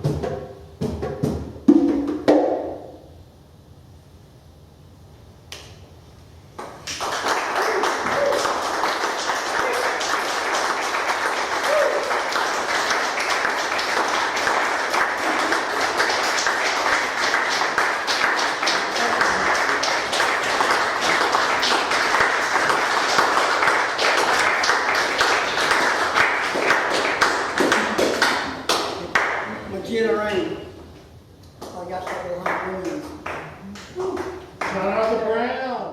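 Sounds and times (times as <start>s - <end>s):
audience applause: 6.6s - 29.6s.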